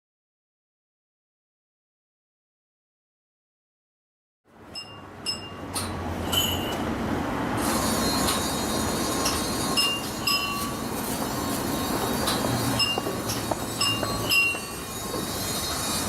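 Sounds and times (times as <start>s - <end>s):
high metallic tings and clinks: 6.2s - 6.8s, 8.0s - 11.2s, 11.8s - 16.0s.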